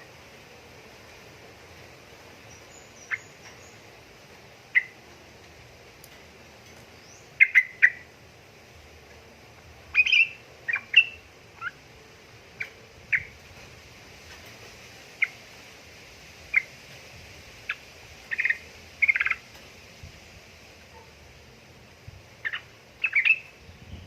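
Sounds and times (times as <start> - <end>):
bulbul calling: 4.7 - 5.0, 7.0 - 8.1, 9.9 - 11.8, 17.7 - 19.4, 22.4 - 23.6.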